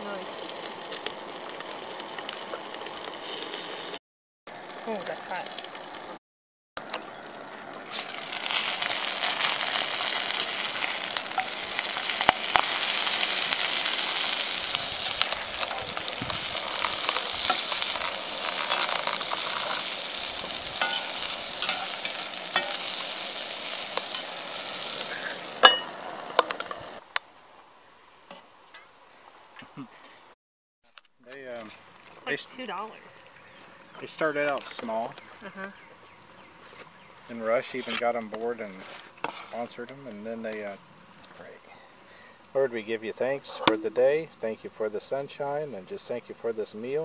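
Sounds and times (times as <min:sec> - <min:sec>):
vegetables sizzling in a skillet: 0:00.0 - 0:06.2, 0:06.8 - 0:27.0
spatula scraping and clacking on pan: 0:20.8 - 0:23.0.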